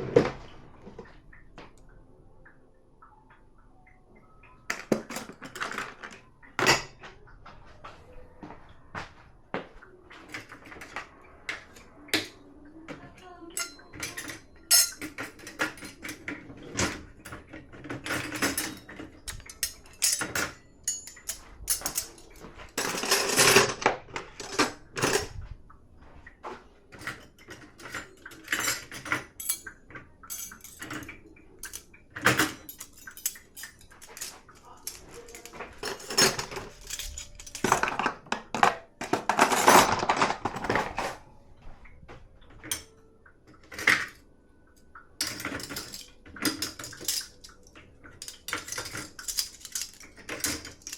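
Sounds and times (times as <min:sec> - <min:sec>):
dishes and cutlery clattering: 0:04.5 - 0:07.2, 0:10.1 - 0:25.4, 0:26.9 - 0:41.2, 0:42.6 - 0:44.2, 0:45.2 - 0:50.9.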